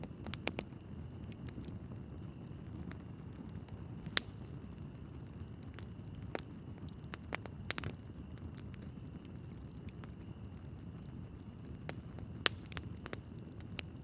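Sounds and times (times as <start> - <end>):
logs crackling and popping: 0.0 - 14.0
low rumble of flames: 0.0 - 14.0.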